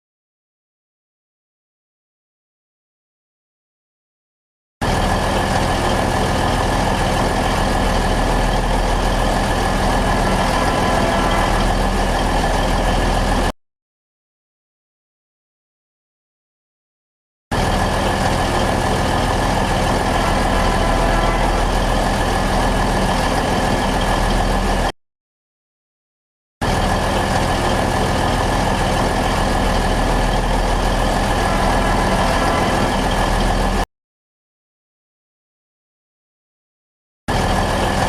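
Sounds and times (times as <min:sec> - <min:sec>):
locomotive engine running: 0:04.8 - 0:13.5, 0:17.5 - 0:24.9, 0:26.6 - 0:33.8, 0:37.3 - 0:38.0.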